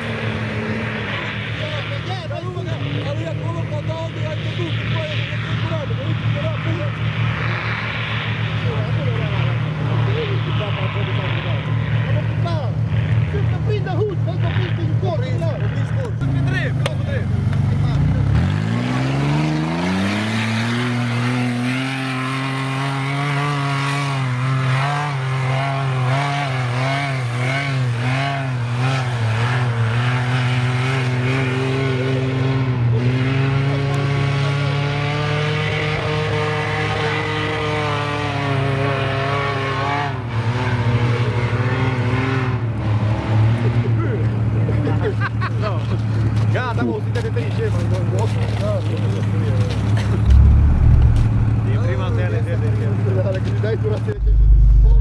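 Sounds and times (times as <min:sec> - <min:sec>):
engine revving: 0:17.8 - 0:43.7, 0:49.9 - 0:53.0, 0:54.1 - 0:55.0.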